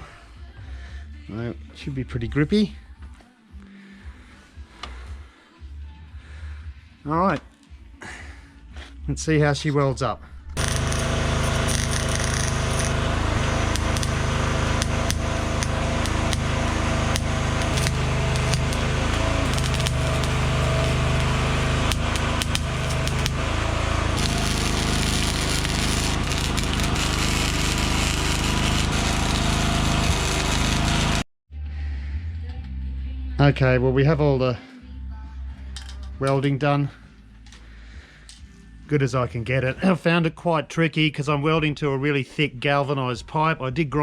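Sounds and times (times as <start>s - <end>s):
arc welder crackling and popping: 10.6s - 31.2s.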